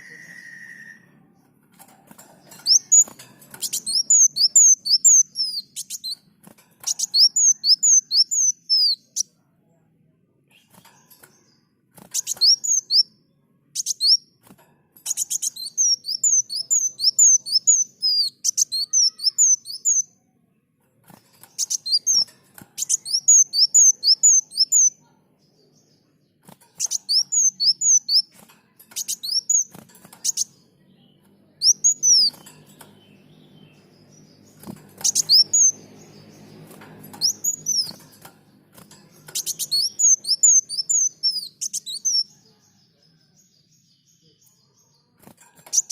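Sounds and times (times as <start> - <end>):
sunbird chirping: 2.4 - 9.2, 15.0 - 20.2, 21.3 - 42.7.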